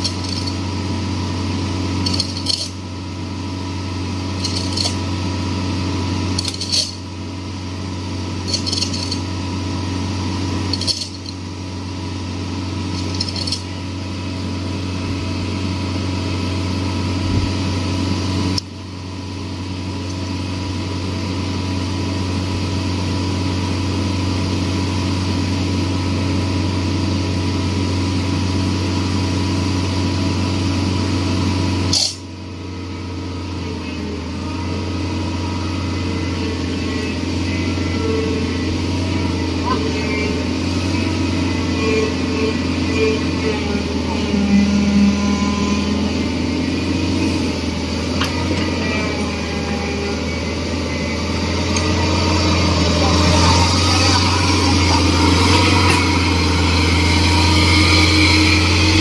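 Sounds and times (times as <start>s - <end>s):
sharp metallic clinks: 0.0s - 0.6s, 2.0s - 2.8s, 4.4s - 5.0s, 8.4s - 9.3s, 12.9s - 13.7s
excavator engine droning: 0.0s - 59.0s.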